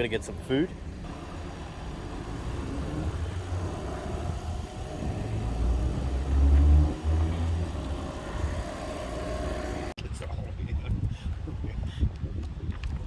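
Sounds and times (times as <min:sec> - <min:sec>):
car engine and road rumble: 0:00.0 - 0:10.0.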